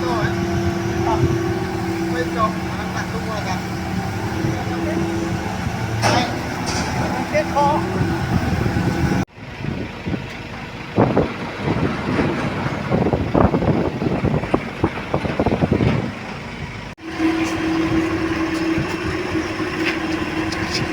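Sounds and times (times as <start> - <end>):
heavy truck engine running: 0.0 - 20.9
irregular knocks and clanks: 2.8 - 9.2.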